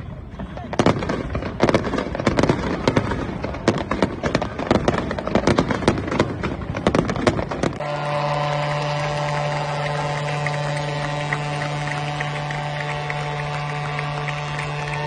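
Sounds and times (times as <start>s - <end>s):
fireworks bangs and pops: 0.2s - 15.0s
steady droning hum: 7.4s - 15.0s.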